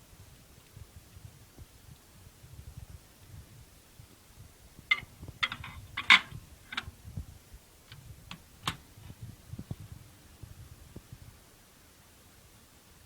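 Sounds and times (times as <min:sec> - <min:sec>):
sharp clicks and knocks: 0:04.9 - 0:06.9, 0:07.9 - 0:08.8
soft low thumps: 0:06.4 - 0:11.4.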